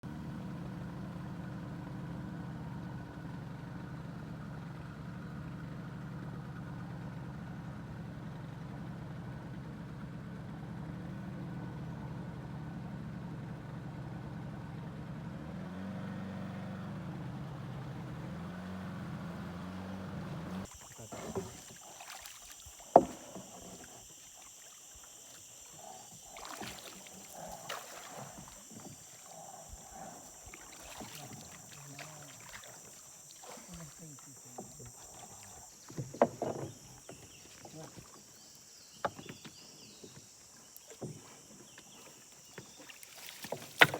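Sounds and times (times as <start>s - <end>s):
boat engine drone: 0.1s - 43.9s
steady high whine: 20.6s - 37.0s.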